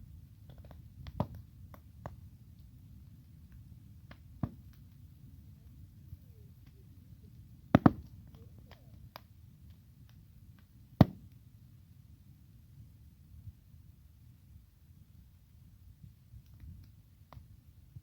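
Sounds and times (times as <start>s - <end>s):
bonfire rumbling and crackling: 0.0s - 18.0s
wood popping: 0.4s - 2.7s, 3.5s - 11.4s.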